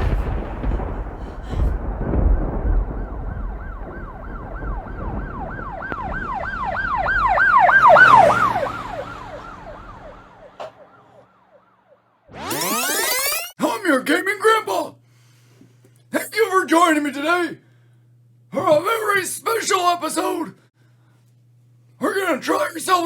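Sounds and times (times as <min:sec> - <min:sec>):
low rumble: 0:00.0 - 0:10.5
siren on fast yelp: 0:03.2 - 0:13.6.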